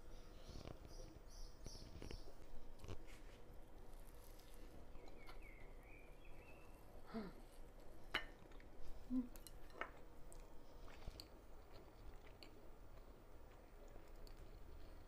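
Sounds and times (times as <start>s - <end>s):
person chewing soft food: 1.6s - 5.7s, 7.8s - 15.0s.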